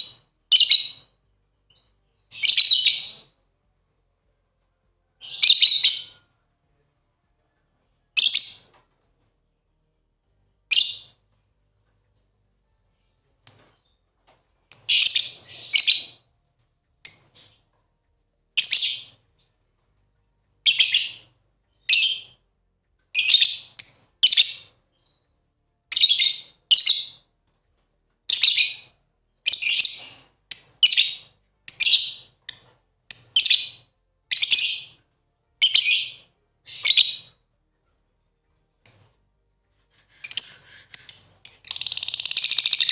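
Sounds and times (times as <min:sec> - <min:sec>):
lovebirds chirping: 0:01.7 - 0:03.3, 0:14.7 - 0:16.2, 0:25.9 - 0:27.2, 0:28.3 - 0:35.0, 0:35.6 - 0:37.4, 0:39.9 - 0:42.9.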